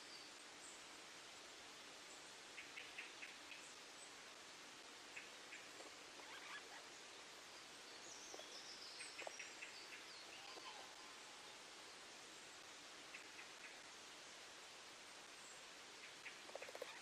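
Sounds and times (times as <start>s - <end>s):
faint steady hiss: 0.0s - 17.0s
bird chirps: 6.2s - 6.8s
high bird warbling: 6.2s - 6.8s.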